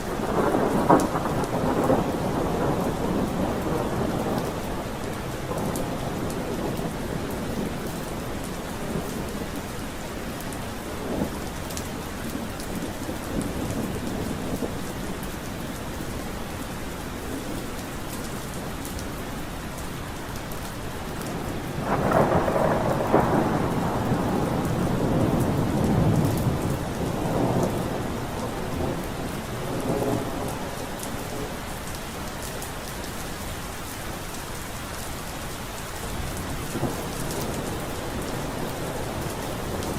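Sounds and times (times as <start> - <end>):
rolling thunder: 0.0 - 9.8, 21.3 - 31.6, 36.1 - 39.9
heavy rain: 0.0 - 39.9.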